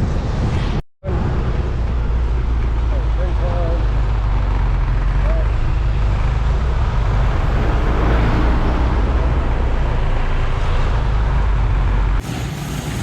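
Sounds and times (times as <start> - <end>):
wind rushing over microphone: 0.0 - 2.6
road and engine noise: 0.0 - 13.0.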